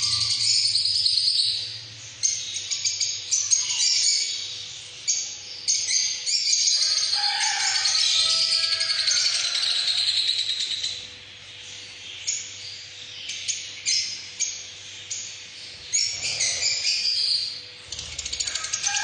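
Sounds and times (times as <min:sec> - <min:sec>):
parrots calling: 0:00.0 - 0:04.5, 0:05.1 - 0:11.1, 0:15.7 - 0:19.0.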